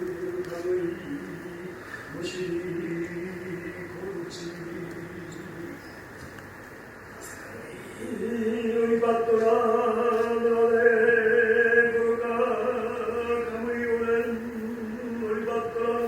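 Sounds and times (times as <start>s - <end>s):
low chant-like drone: 7.6s - 16.0s.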